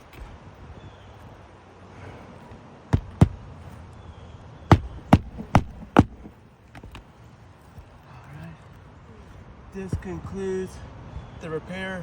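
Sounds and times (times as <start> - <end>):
hammer striking roofing nails: 3.0 - 3.4, 4.7 - 7.0.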